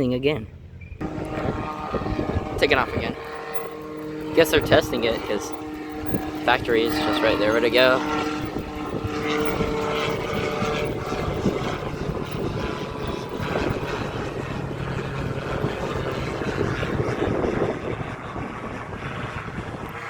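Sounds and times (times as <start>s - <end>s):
aircraft engine running: 0.0s - 20.0s.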